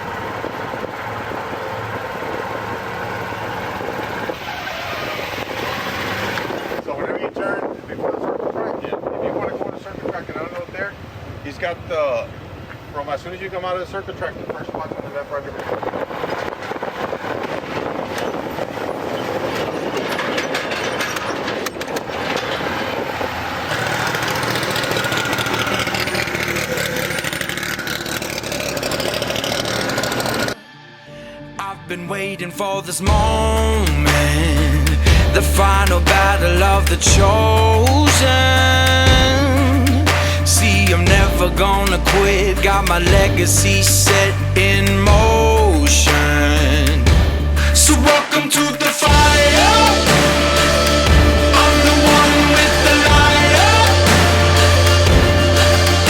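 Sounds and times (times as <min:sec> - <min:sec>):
truck engine humming: 0:00.0 - 0:06.8, 0:10.9 - 0:30.6, 0:31.6 - 0:56.0
wind noise: 0:03.7 - 0:11.3, 0:14.0 - 0:23.7.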